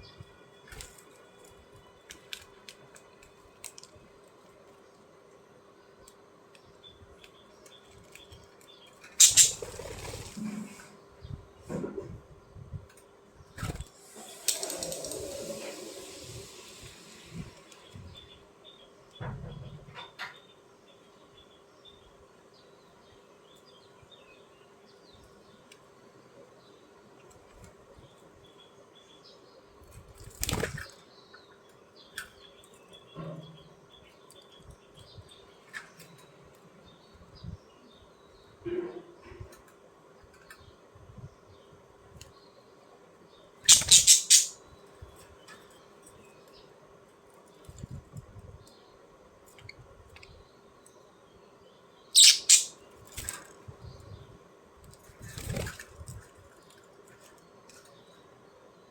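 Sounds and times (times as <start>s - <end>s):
faint bird chirps: 6.7s - 10.7s, 43.4s - 46.7s, 51.3s - 52.9s
budgerigar calls: 9.2s - 9.6s, 43.7s - 44.6s, 52.2s - 52.8s
wings flapping: 9.2s - 10.7s, 30.2s - 30.9s, 43.7s - 44.5s, 55.2s - 56.1s
soft flutters and rustling: 54.8s - 58.0s.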